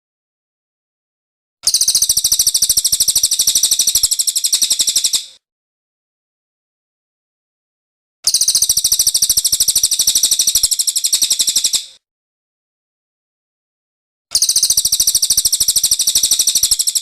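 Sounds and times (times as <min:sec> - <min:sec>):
bird high-pitched trill: 0:01.6 - 0:05.4, 0:08.3 - 0:11.9, 0:14.3 - 0:17.0.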